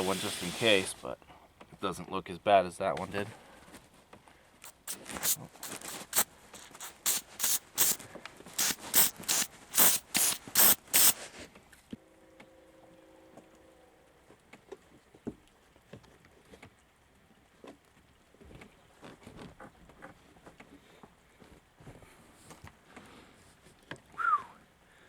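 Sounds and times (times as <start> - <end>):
aerosol can spraying bursts: 0.0 - 0.9, 4.6 - 8.0, 8.6 - 11.2
faint steady hum: 11.2 - 14.6.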